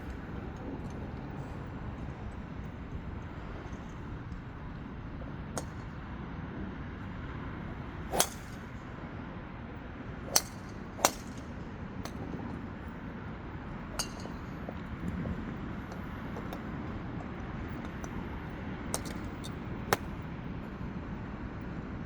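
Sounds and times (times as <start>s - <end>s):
golf clubs striking balls: 8.1s - 8.8s, 10.2s - 12.6s, 13.9s - 15.1s, 18.9s - 20.2s.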